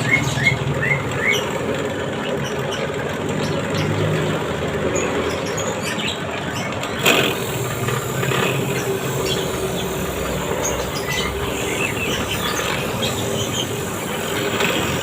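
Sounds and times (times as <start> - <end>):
sanding scraping: 7.0 - 15.0.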